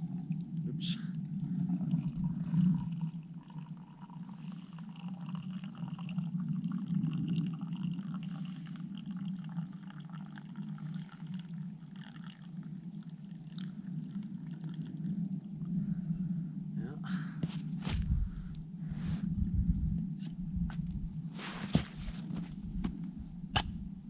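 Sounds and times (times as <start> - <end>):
tea pouring into a mug: 1.8 - 15.0.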